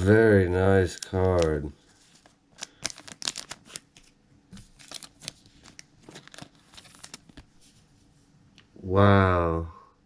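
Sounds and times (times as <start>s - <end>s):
cards being shuffled: 0.8s - 7.8s.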